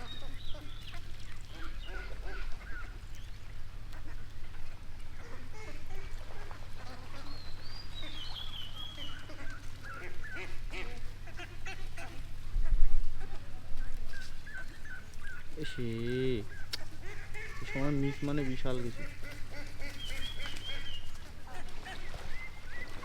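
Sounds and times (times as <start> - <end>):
warbling bird call: 0.0 - 23.0
waterfowl honking: 0.0 - 23.0.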